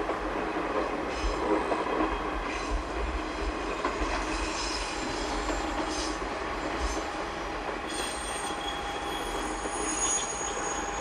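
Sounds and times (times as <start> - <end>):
railcar wheels rumbling: 0.0 - 11.0
high wheel squeals: 7.9 - 11.0.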